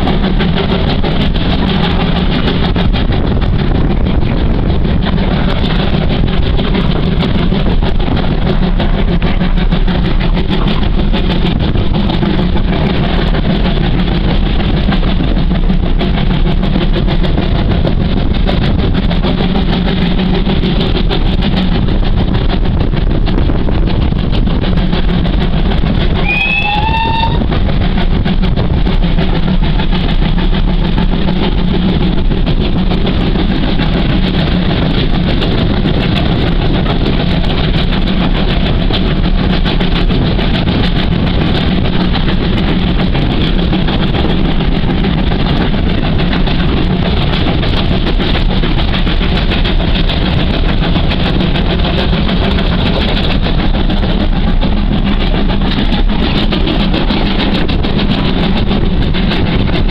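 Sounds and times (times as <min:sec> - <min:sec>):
moving train rumble: 0:00.0 - 0:59.9
brief rising tone: 0:26.2 - 0:27.4.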